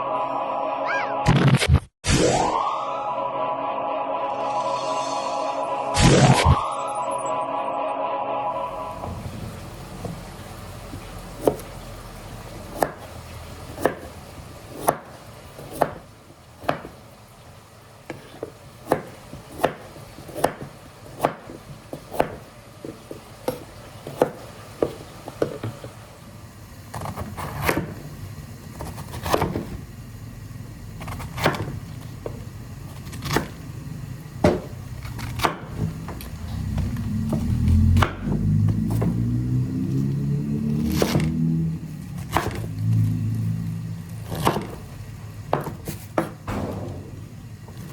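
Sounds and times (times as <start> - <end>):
knife chopping on wooden board: 11.4 - 11.7, 12.7 - 13.1, 13.7 - 16.0, 16.6 - 17.0, 18.1 - 25.8, 27.0 - 28.0, 28.8 - 29.8, 31.0 - 32.4, 34.4 - 36.2, 42.3 - 42.7, 44.2 - 44.8, 45.5 - 47.0.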